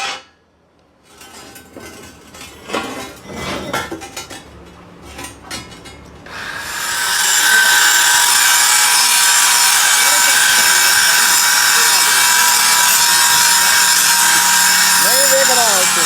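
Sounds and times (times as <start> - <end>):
power tool whining: 6.3 - 16.0.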